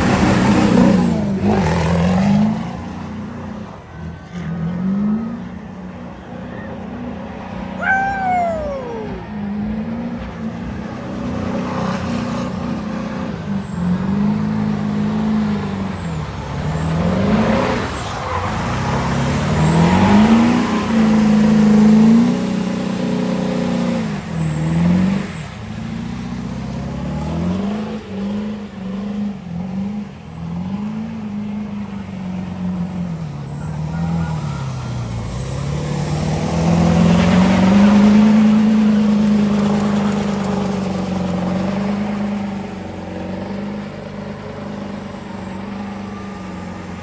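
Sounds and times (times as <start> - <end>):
truck engine revving: 0.0 - 47.0
short falling whistle: 7.8 - 9.4.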